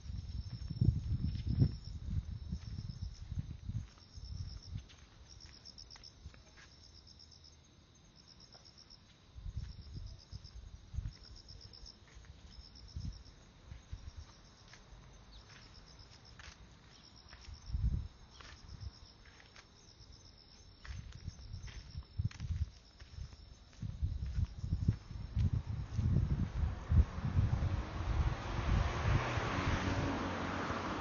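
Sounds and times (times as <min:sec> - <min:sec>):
insect chirping trills: 0:00.0 - 0:27.2
soft footsteps: 0:13.5 - 0:26.8.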